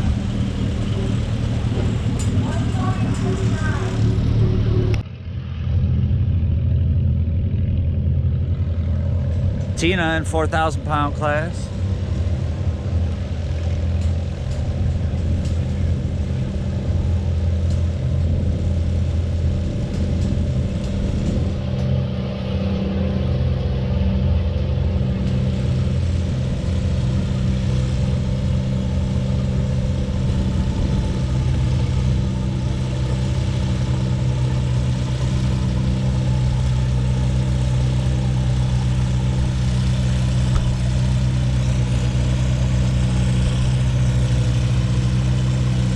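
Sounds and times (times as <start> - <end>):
tractor engine running under load: 0.0 - 45.9.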